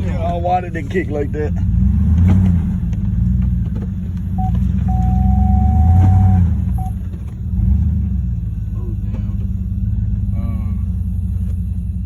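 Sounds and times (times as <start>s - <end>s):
truck engine revving: 0.0s - 12.0s
high beep-like tone: 4.4s - 6.9s.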